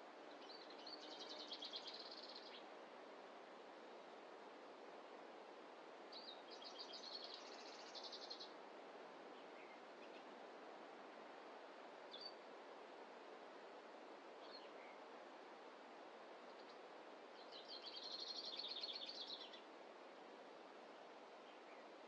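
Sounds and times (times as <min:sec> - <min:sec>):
forest ambience: 0:00.0 - 0:10.4, 0:14.0 - 0:22.0
songbird trill: 0:00.4 - 0:02.6, 0:06.1 - 0:08.5, 0:17.4 - 0:19.7.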